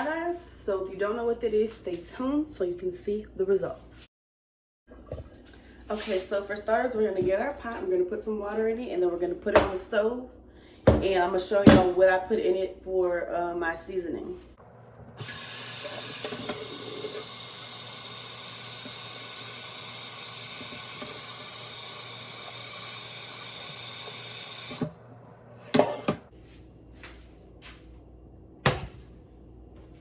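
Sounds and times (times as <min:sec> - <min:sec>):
tap water filling a pot: 0:15.0 - 0:24.9.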